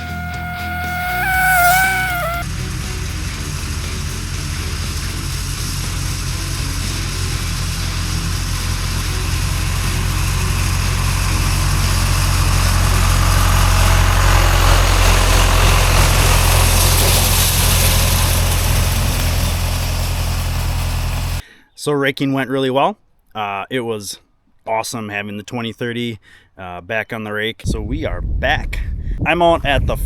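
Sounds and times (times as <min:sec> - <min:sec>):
tractor engine running: 0:00.0 - 0:21.4.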